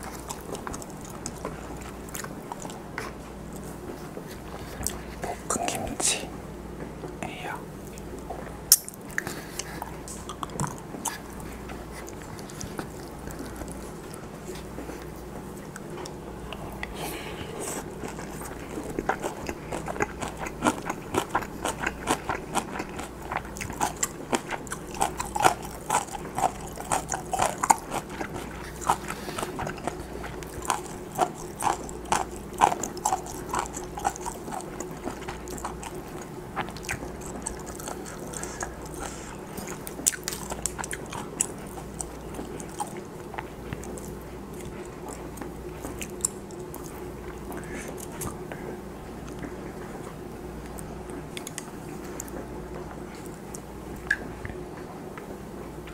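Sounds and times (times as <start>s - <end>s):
chewing and wet mouth clicks: 7.8s - 17.0s, 17.8s - 48.4s, 50.6s - 54.6s.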